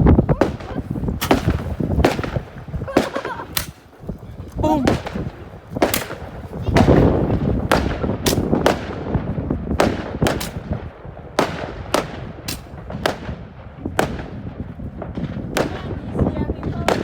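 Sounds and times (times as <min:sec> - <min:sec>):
fireworks bangs: 0:00.0 - 0:17.0
low rumble of fireworks: 0:00.0 - 0:17.0.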